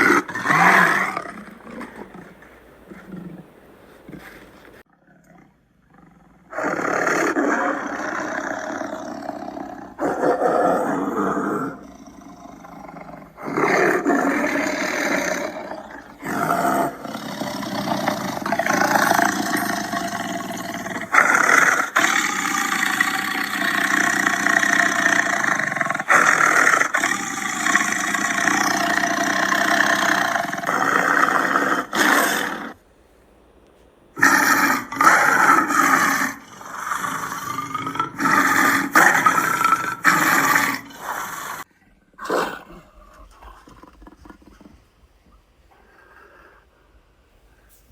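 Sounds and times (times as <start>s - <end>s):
big cats roaring and growling: 0.0s - 44.8s.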